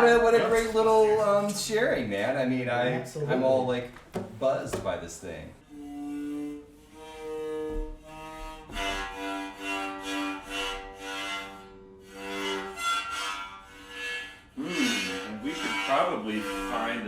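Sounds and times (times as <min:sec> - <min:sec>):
bowed one-string fiddle: 0:05.6 - 0:17.0.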